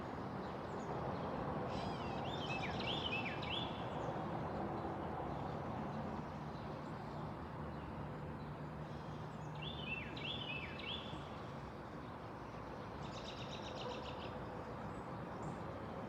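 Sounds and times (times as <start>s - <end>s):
songbird singing: 1.7s - 4.0s, 9.0s - 11.3s.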